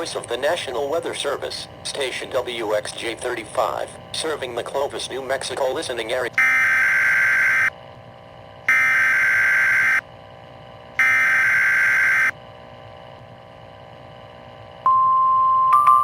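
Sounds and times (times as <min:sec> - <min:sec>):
faint steady hum: 0:00.0 - 0:16.0
warning alarm tone: 0:06.4 - 0:07.7, 0:08.7 - 0:10.0, 0:11.0 - 0:12.4.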